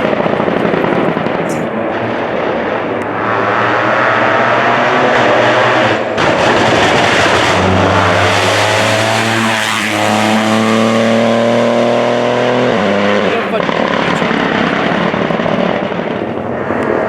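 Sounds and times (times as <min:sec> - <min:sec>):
rally car engine revving: 0:00.0 - 0:16.2.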